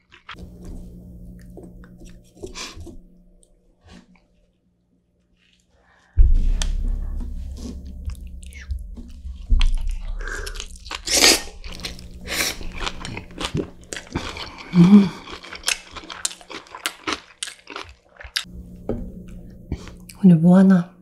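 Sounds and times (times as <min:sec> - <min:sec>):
short low hum: 0:00.4 - 0:03.6, 0:06.2 - 0:14.9
chewing with crunching: 0:10.4 - 0:18.5.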